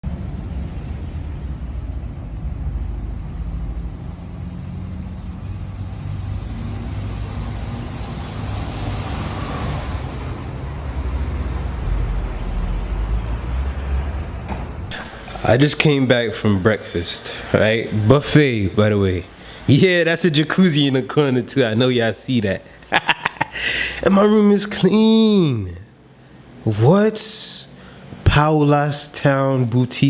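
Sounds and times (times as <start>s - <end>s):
motor vehicle rumble: 0.0s - 19.7s.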